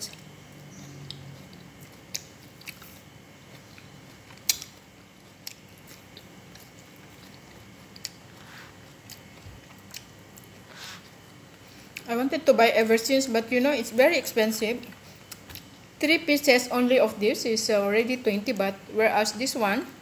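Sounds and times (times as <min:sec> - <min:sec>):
person chewing fruit: 0:00.0 - 0:12.1, 0:14.8 - 0:15.8.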